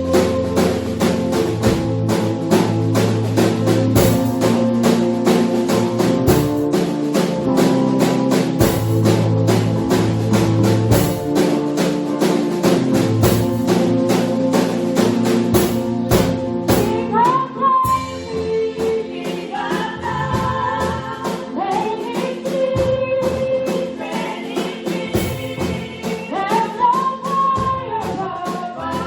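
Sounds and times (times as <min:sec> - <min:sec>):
gospel band music: 0:00.0 - 0:29.0
percussion beat: 0:00.0 - 0:29.0
person singing: 0:16.7 - 0:29.0.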